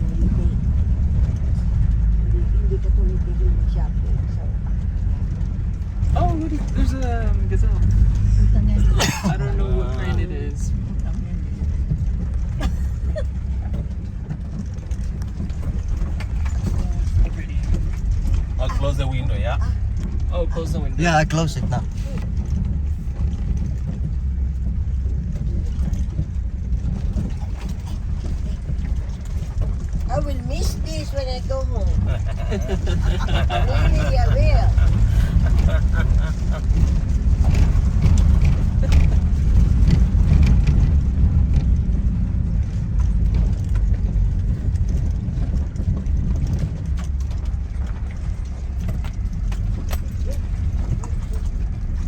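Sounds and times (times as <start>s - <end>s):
van engine and tyres rumbling: 0.0s - 52.0s
small rattles and knocks: 10.6s - 52.0s.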